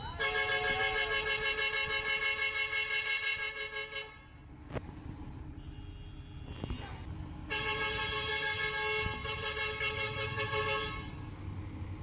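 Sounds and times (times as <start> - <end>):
vehicle horn blast: 0.2 - 4.4, 7.5 - 11.2.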